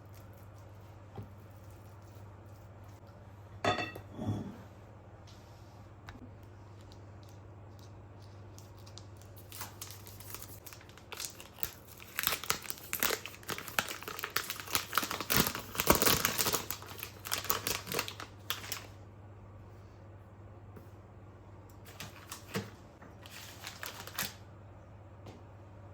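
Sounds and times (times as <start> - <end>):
packaging crinkling: 8.2 - 19.0, 23.2 - 24.4.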